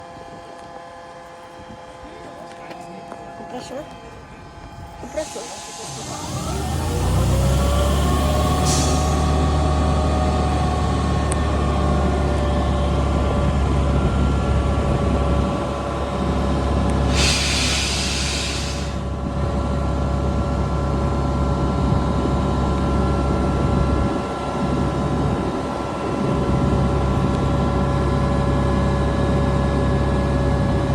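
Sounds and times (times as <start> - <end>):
air compressor humming and whining: 1.4 - 19.1
hiss of escaping air: 5.1 - 7.6, 8.4 - 9.3, 17.1 - 19.0.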